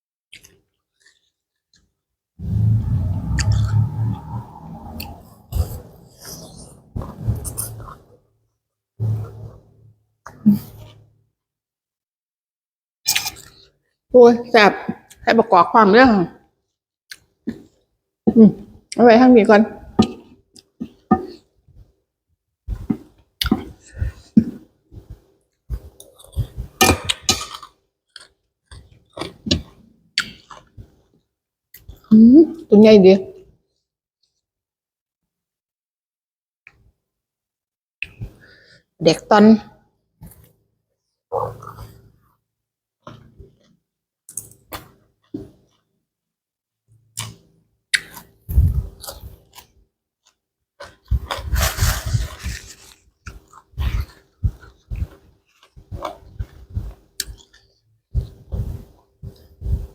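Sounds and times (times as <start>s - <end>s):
wet chewing and mouth smacking: 0.3s - 1.3s, 47.1s - 59.9s.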